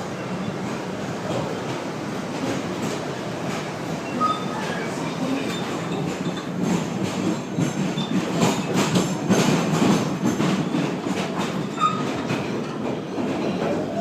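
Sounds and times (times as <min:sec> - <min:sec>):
subway train rumble: 0:00.0 - 0:14.0
wheels clacking over rails: 0:00.6 - 0:14.0
high wheel squeal: 0:04.0 - 0:06.1, 0:11.6 - 0:12.2.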